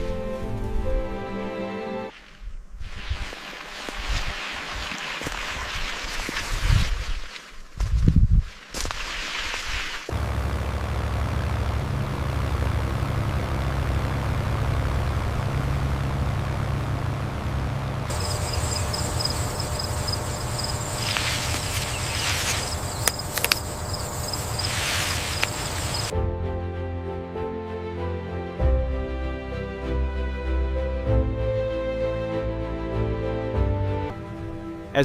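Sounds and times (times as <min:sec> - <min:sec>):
low engine rumble: 0:10.1 - 0:26.1
mid-pitched hum: 0:10.1 - 0:26.1
insect chirping: 0:18.1 - 0:26.1
sharp clicks: 0:22.7 - 0:26.1.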